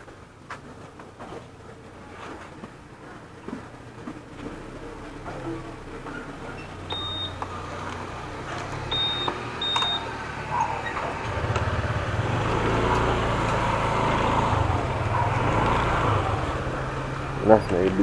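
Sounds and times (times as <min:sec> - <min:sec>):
motorcycle engine running: 0:03.5 - 0:18.0
short high electronic beeps: 0:06.9 - 0:07.4, 0:08.9 - 0:10.1.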